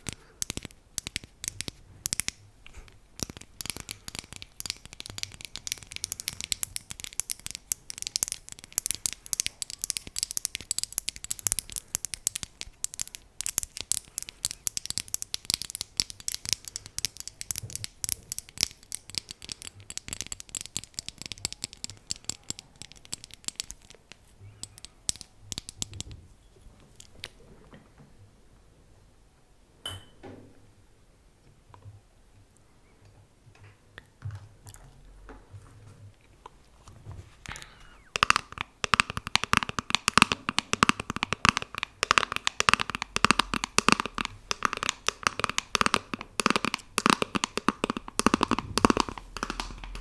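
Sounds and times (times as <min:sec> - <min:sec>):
crisp tapping and scratching: 0:00.0 - 0:27.6, 0:36.8 - 0:50.0
short ringing clink: 0:29.8 - 0:30.2.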